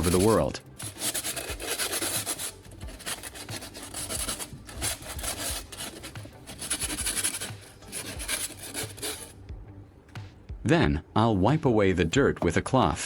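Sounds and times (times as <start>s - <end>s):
sandpaper scrubbing metal: 0.0s - 9.3s.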